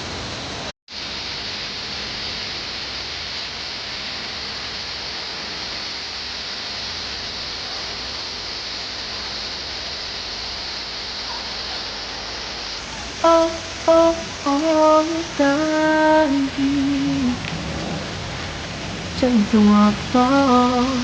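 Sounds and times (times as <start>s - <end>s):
waterfall rushing and splashing: 10.8s - 21.0s.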